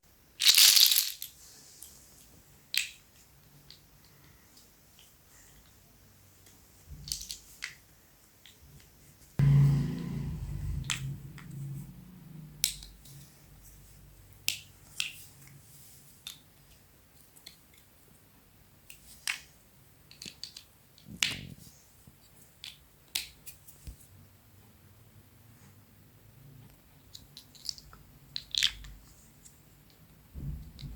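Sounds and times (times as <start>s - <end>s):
plastic blocks clicking: 0.4s - 1.4s, 7.0s - 7.8s, 20.1s - 21.4s, 27.0s - 29.0s
loud thump: 9.4s - 11.8s, 30.4s - 30.9s.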